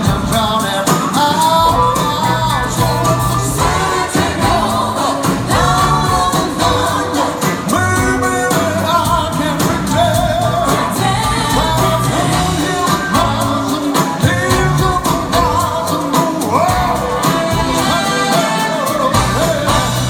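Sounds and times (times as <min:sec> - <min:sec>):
bass: 0:00.0 - 0:20.0
drum beat: 0:00.0 - 0:20.0
person singing with vibrato: 0:00.0 - 0:20.0.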